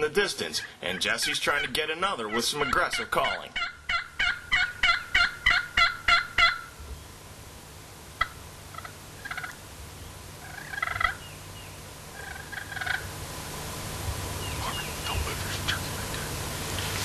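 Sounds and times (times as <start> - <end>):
turkey calls: 0.0 - 6.8, 8.2 - 9.6, 10.4 - 13.2, 14.3 - 17.0
turkey call yelps: 0.6 - 6.8, 8.2 - 9.6, 10.4 - 11.4, 12.1 - 13.1.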